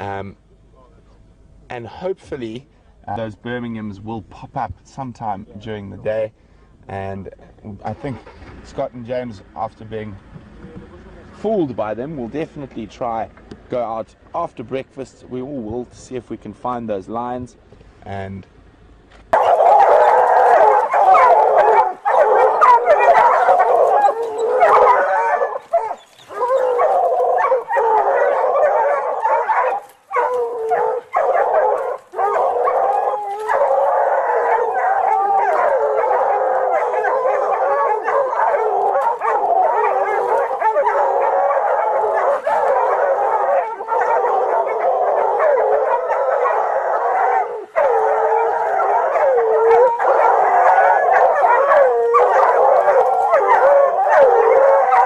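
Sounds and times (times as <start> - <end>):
dogs howling and whining: 19.4 - 55.0.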